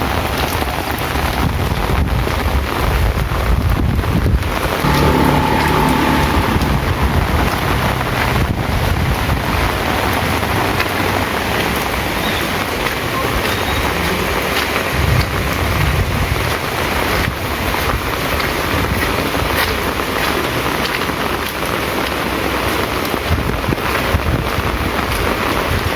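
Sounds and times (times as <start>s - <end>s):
heavy rain pouring: 0.0s - 25.9s
low rumble: 4.6s - 11.1s.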